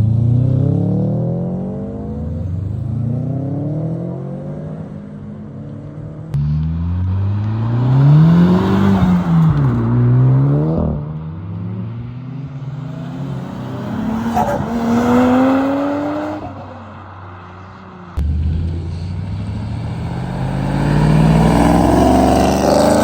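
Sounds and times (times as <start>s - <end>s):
car engine accelerating: 6.3s - 11.6s, 18.1s - 23.0s.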